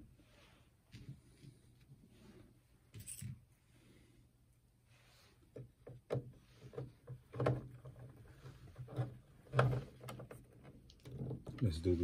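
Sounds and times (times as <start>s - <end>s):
plastic parts clicking and knocking: 5.5s - 11.6s.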